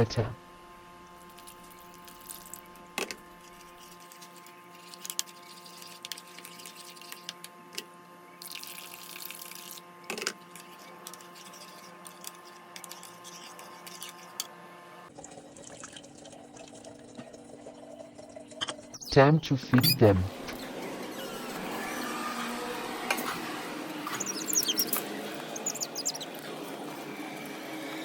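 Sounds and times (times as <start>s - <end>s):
water running from a tap: 8.4s - 9.8s.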